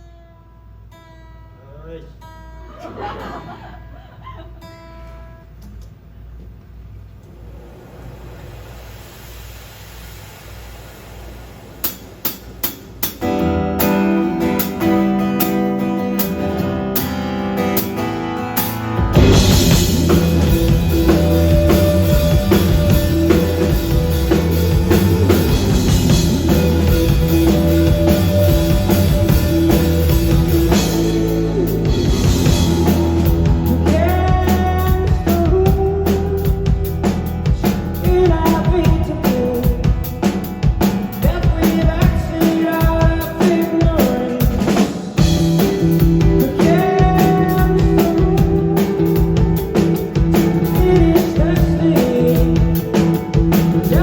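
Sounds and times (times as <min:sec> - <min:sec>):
drum kit: 0:07.2 - 0:54.0
electric guitar: 0:11.8 - 0:54.0
bass guitar: 0:13.0 - 0:54.0
lead vocal singing: 0:33.6 - 0:36.6, 0:46.3 - 0:49.4, 0:50.6 - 0:52.9.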